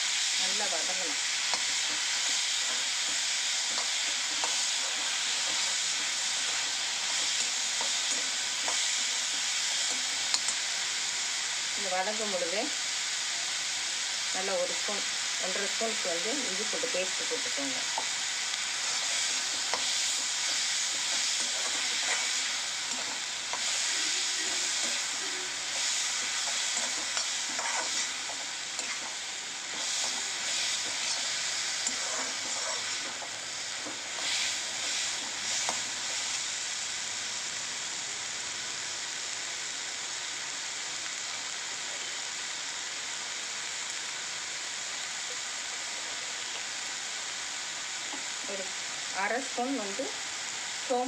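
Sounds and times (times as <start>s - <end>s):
vegetables sizzling in a pan: 0.0s - 51.0s
metal spatula scraping a pan: 18.8s - 35.8s.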